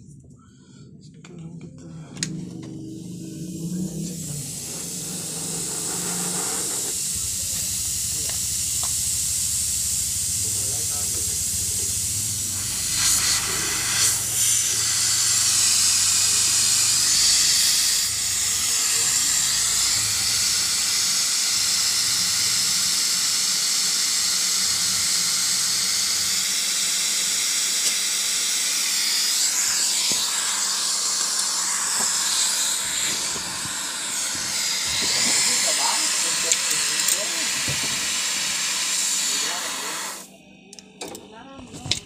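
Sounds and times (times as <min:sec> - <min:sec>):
pressurized gas hissing: 0:02.2 - 0:40.4.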